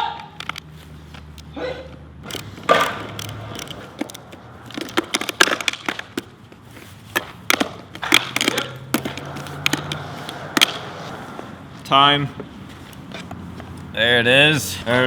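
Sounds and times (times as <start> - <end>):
sharp clicks: 2.2 - 6.2.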